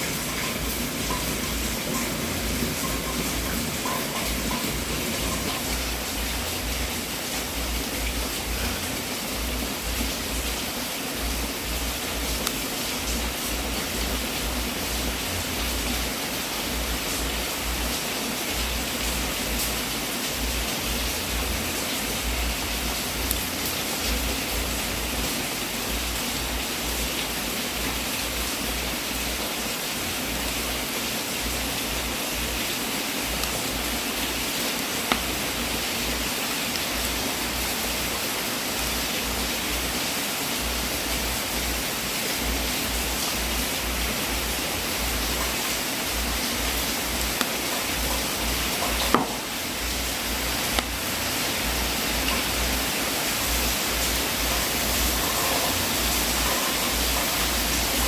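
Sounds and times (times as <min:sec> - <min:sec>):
wood fire crackling: 0:33.2 - 0:39.9, 0:42.4 - 0:58.0.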